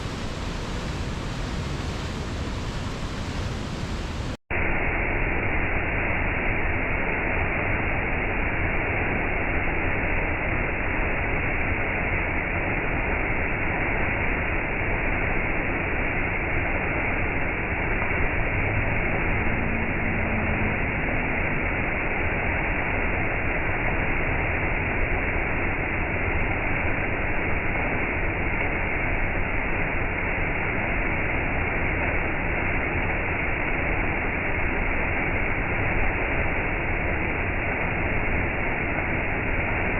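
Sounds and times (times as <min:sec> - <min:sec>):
waterfall rushing: 0:00.0 - 0:04.4, 0:17.8 - 0:22.5.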